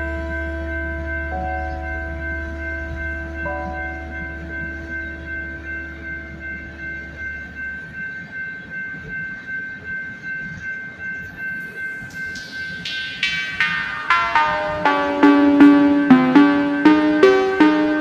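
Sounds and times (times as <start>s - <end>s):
steady high tone: 11.0s - 18.0s.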